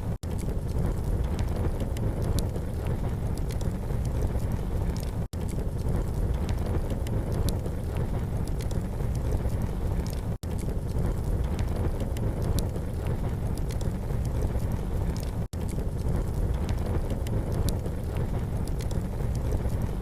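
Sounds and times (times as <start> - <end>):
campfire crackling and popping: 0.0 - 20.0
steady low rumble: 0.0 - 20.0.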